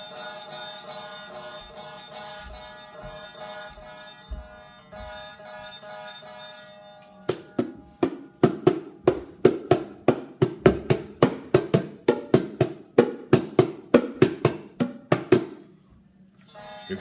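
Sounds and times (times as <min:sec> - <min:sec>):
bongo drums: 0:07.3 - 0:15.6.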